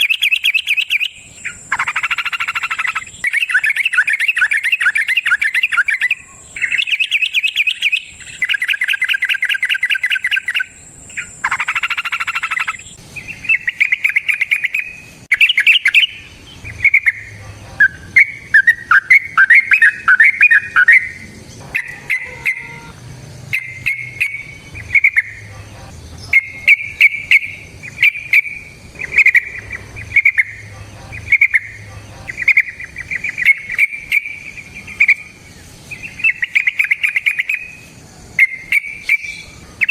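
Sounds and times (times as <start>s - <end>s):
bulbul rattling trills: 0.0s - 39.9s
bulbul chattering phrases: 16.6s - 18.2s, 21.3s - 33.2s.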